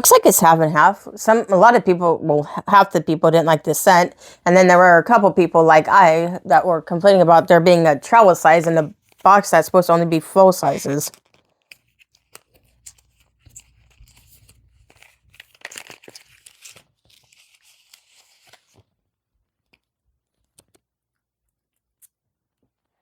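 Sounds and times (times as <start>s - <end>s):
packaging tearing and rustling: 11.0s - 19.0s.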